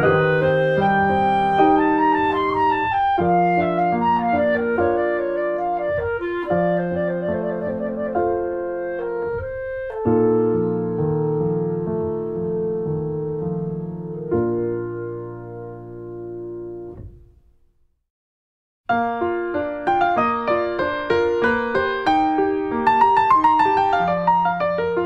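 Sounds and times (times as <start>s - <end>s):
woodwind melody: 0.0s - 13.4s
piano: 0.0s - 18.0s, 18.9s - 25.0s.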